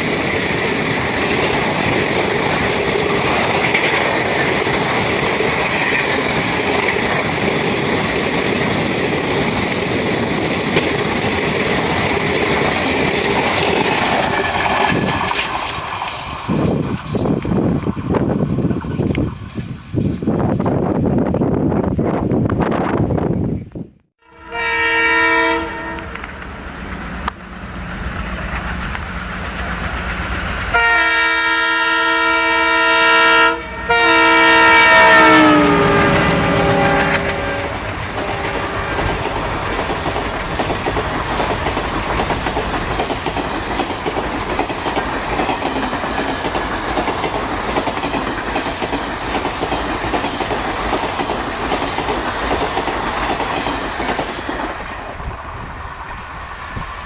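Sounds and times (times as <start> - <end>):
train wheels clattering over rails: 0.0 - 20.8, 35.0 - 55.4
locomotive horn: 24.2 - 26.2, 30.7 - 39.2.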